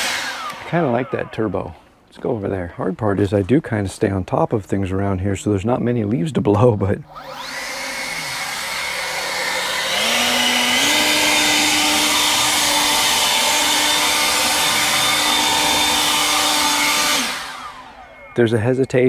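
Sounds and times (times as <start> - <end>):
leaf blower running: 0.0 - 1.1, 7.1 - 18.5.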